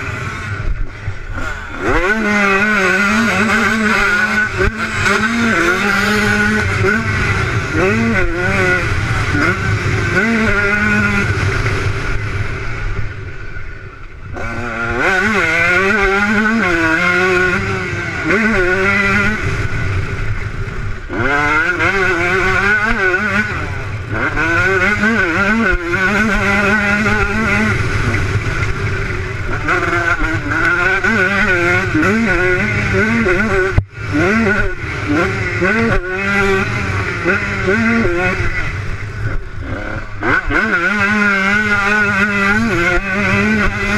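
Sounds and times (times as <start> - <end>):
motocross motorcycle engines revving: 0.0 - 43.9.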